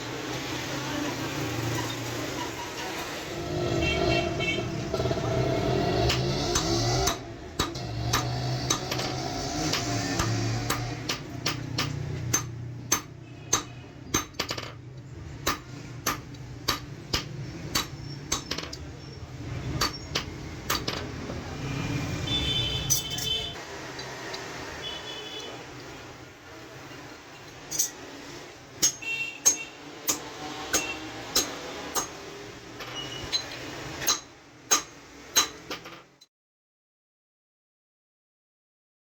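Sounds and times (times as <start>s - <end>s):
hammer striking metal: 5.8s - 14.8s, 15.4s - 18.8s, 19.7s - 21.1s, 28.8s - 32.3s, 32.9s - 35.9s.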